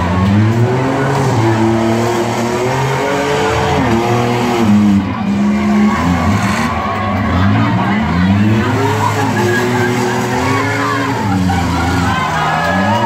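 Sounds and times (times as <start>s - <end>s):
car engines revving hard: 0.0s - 13.0s.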